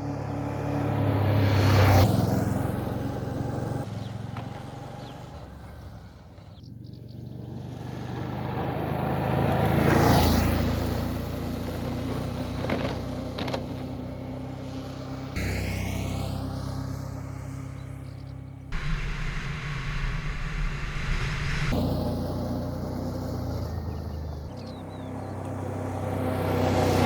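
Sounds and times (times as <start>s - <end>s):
motorcycle engine running: 2.2s - 27.0s
rushing wind noise: 18.7s - 23.0s.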